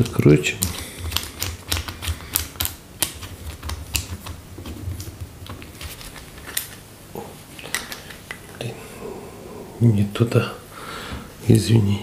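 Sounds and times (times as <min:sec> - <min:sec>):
metal parts clicking and tapping: 0:00.0 - 0:06.8, 0:07.6 - 0:08.4.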